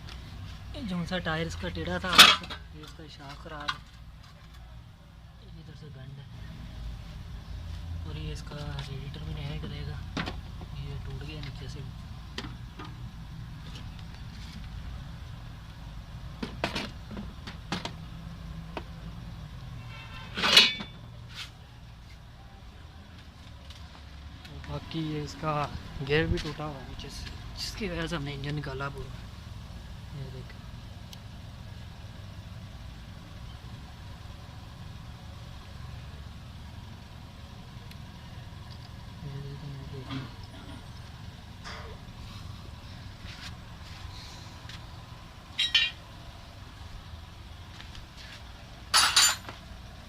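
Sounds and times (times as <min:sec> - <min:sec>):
low engine rumble: 0:00.0 - 0:50.0
ringing metallic clang: 0:20.0 - 0:21.0, 0:45.6 - 0:46.0, 0:48.9 - 0:49.6
metal parts knocking and clinking: 0:20.3 - 0:21.0, 0:45.6 - 0:46.0, 0:48.9 - 0:49.6.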